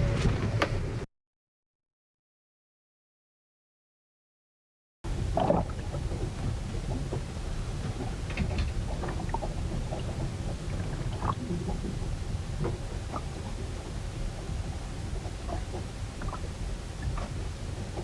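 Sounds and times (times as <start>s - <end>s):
rumble of wind and water: 0.0s - 1.1s, 5.1s - 18.0s
knocks and creaks: 5.1s - 14.5s.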